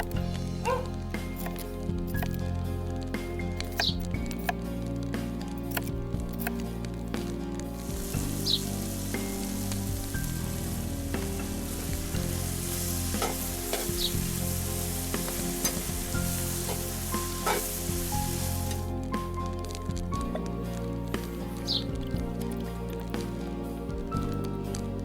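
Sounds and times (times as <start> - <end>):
background music: 0.0 - 25.0
food sizzling in oil: 7.7 - 19.3.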